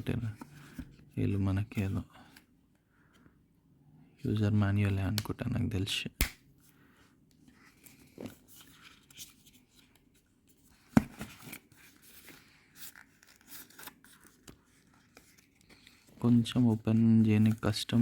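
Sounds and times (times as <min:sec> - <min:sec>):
paper packet rustling and crackling: 0:11.2 - 0:18.0.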